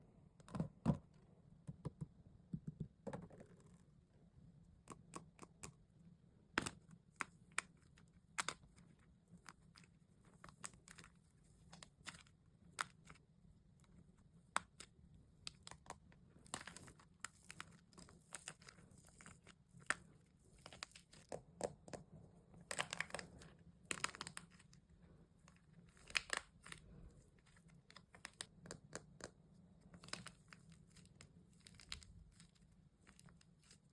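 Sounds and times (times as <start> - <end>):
wax crinkling: 14.6 - 21.4, 22.6 - 33.9
wax coating cracking: 25.9 - 28.8.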